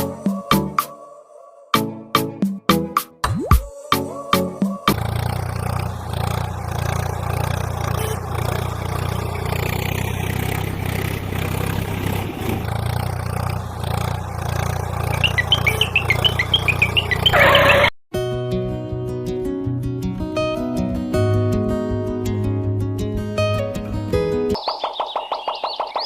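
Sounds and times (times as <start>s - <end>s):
rapid high chirps: 15.0s - 17.9s, 24.6s - 26.0s.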